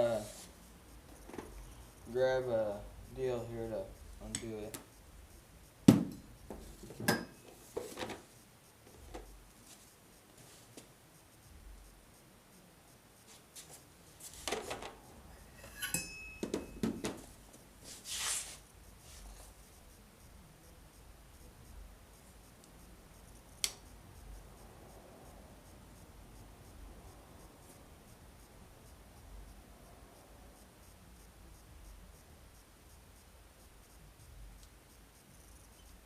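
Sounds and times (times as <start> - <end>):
tools clinking and rattling: 15.5 - 17.3
sharp click: 23.6 - 23.9.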